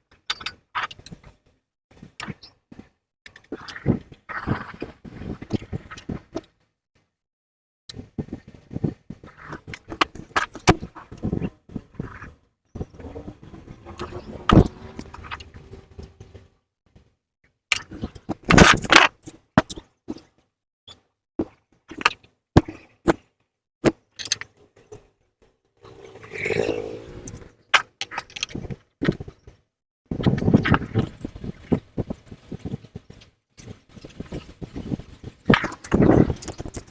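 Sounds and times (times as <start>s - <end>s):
dense loud rattle: 12.8s - 16.5s
metal scraping: 12.8s - 16.6s, 25.8s - 27.7s.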